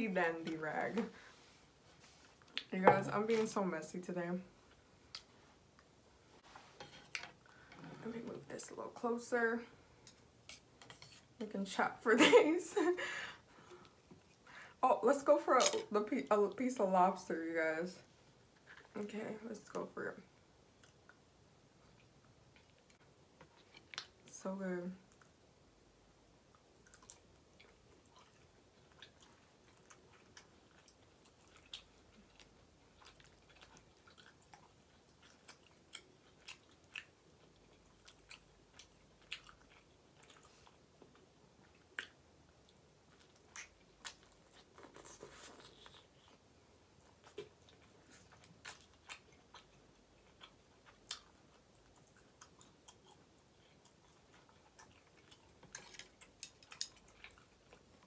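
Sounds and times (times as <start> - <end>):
quiet chewing: 0.4 - 2.7, 13.5 - 14.6, 20.7 - 24.3, 25.0 - 25.4, 26.4 - 58.0.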